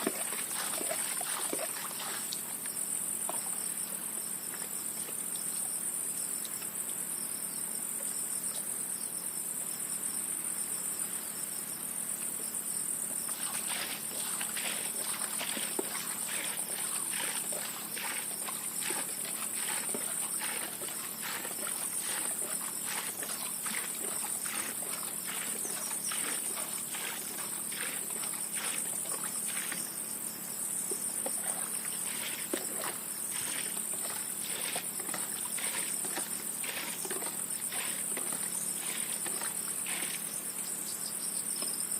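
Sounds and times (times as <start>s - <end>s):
insects chirring: 0.0s - 41.9s
soft scraping strokes: 13.3s - 29.9s, 31.3s - 40.4s.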